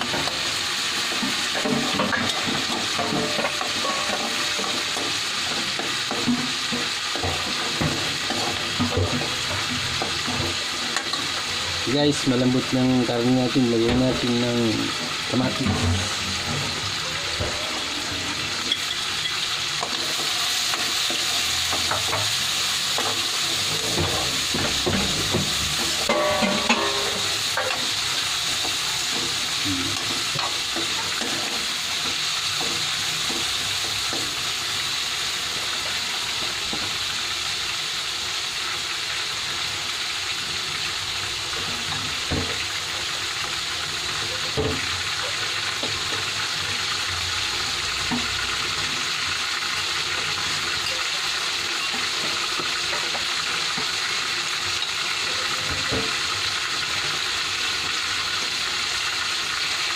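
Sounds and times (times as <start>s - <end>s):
food sizzling in a wok: 0.0s - 59.9s
metal ladle scraping a pan: 0.1s - 11.7s, 14.9s - 36.4s.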